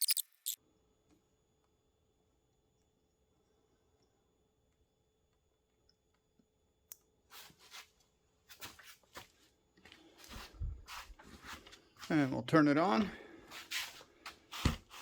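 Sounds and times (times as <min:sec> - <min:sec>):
sharp click: 0:00.0 - 0:00.6.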